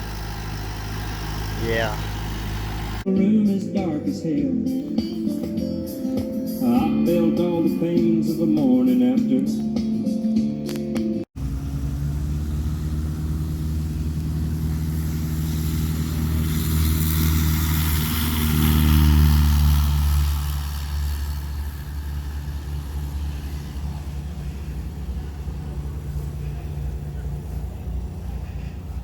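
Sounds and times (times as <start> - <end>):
vehicle engine drone: 0.0 - 3.4, 11.4 - 29.0
road noise: 0.0 - 29.0.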